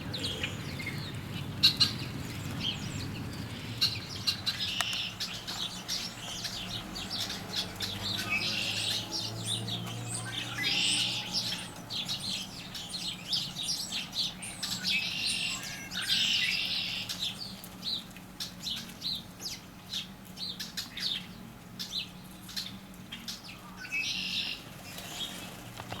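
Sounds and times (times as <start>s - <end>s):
harsh bird calls: 0.0s - 17.6s
songbirds chirping: 0.0s - 26.0s.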